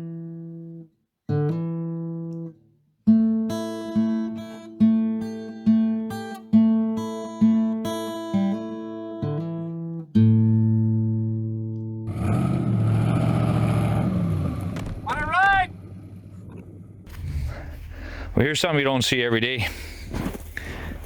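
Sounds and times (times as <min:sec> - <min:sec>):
plucked guitar notes: 0:00.0 - 0:12.1.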